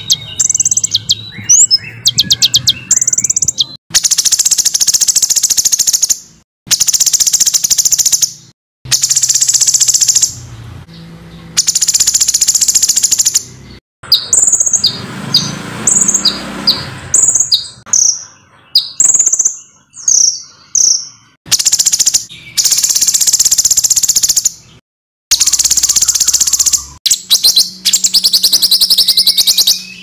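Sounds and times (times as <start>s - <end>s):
songbird trilling: 0.0s - 30.0s
sharply falling whistled notes: 25.3s - 30.0s.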